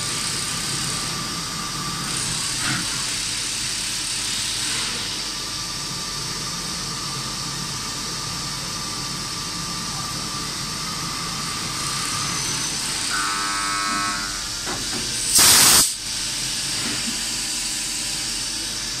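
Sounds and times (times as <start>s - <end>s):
machine high-pitched whine: 6.8s - 19.0s
brief steady tone: 13.1s - 14.5s
short loud hiss: 15.3s - 16.0s.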